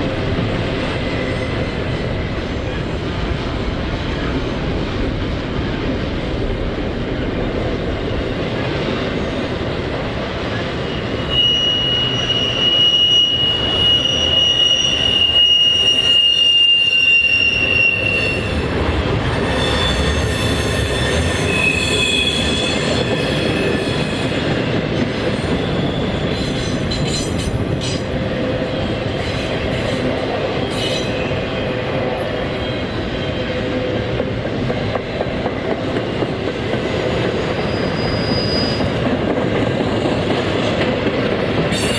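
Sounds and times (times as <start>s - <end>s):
freight train rumbling past: 0.0s - 41.9s
high wheel squeal: 10.8s - 18.7s, 19.4s - 24.4s, 37.4s - 39.0s.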